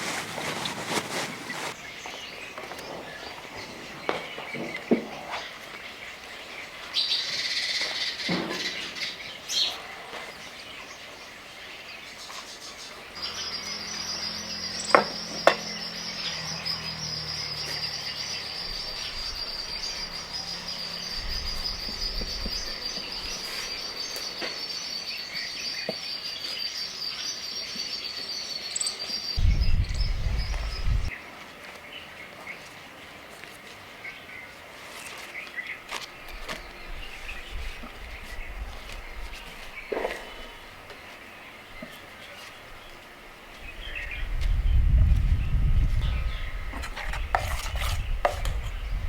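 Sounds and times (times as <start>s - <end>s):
birds chirping: 0.0s - 31.2s, 31.8s - 49.0s
insects chirping: 13.2s - 31.1s
low rumble: 29.4s - 31.1s.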